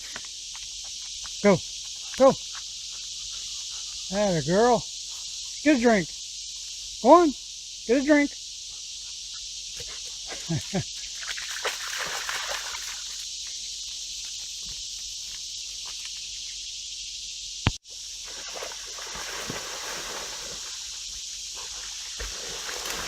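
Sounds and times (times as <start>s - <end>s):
cicada chorus drone: 0.0s - 23.0s
dog wading and drinking water: 9.8s - 13.2s, 18.3s - 23.0s.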